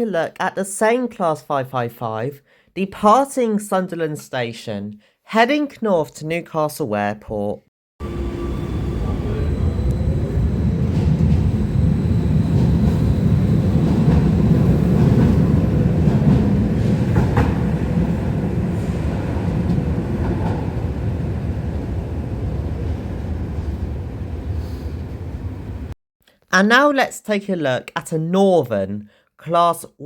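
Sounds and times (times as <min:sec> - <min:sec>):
electric train rumbling: 0:08.0 - 0:26.0.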